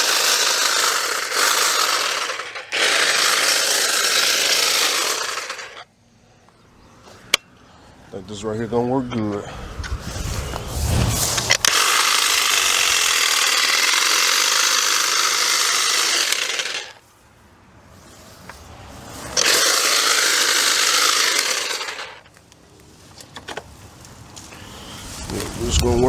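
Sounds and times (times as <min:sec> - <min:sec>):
power tool running: 0:00.0 - 0:05.8, 0:11.7 - 0:17.0, 0:19.4 - 0:22.2.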